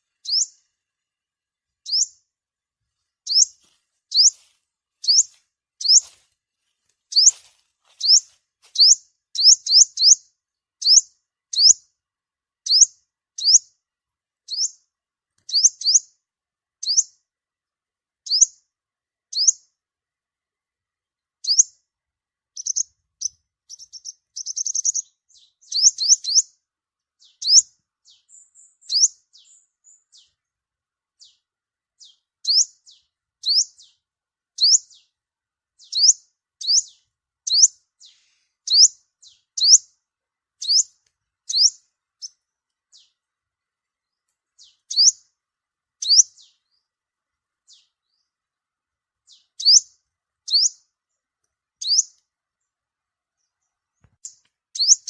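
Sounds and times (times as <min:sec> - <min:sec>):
bird chirping: 0:00.0 - 0:01.0, 0:01.7 - 0:02.3, 0:03.2 - 0:06.2, 0:07.1 - 0:12.0, 0:12.6 - 0:13.8, 0:14.5 - 0:16.2, 0:16.8 - 0:17.2, 0:18.2 - 0:18.7, 0:19.3 - 0:19.8, 0:21.4 - 0:21.9, 0:22.5 - 0:30.5, 0:31.1 - 0:35.2, 0:35.8 - 0:40.0, 0:40.6 - 0:47.0, 0:47.6 - 0:48.5, 0:49.2 - 0:55.0.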